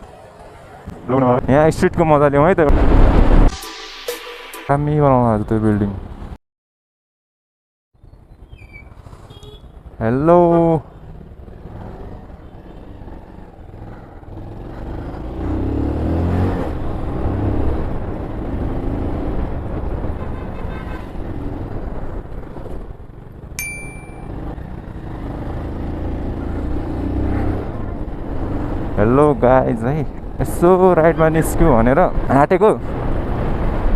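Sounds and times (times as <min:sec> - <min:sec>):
road and wind noise: 0:00.0 - 0:03.6, 0:04.8 - 0:06.4, 0:08.0 - 0:33.9
motorcycle engine accelerating: 0:23.2 - 0:29.0
short high beep: 0:23.6 - 0:24.4.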